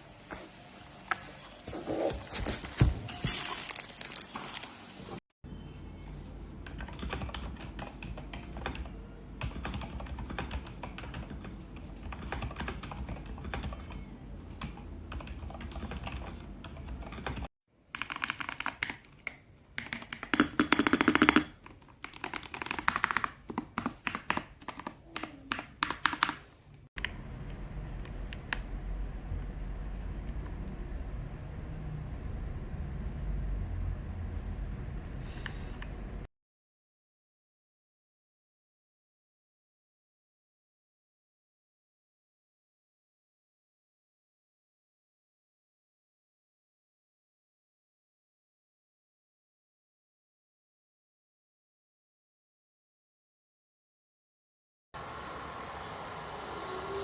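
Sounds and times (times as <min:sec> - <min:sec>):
mechanical keyboard typing: 0:06.6 - 0:27.2
low hum: 0:27.0 - 0:36.2.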